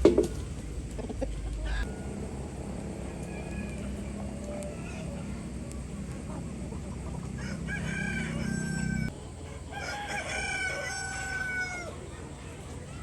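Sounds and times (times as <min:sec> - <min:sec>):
low hum: 0:00.0 - 0:09.5
rooster crowing: 0:00.3 - 0:12.2.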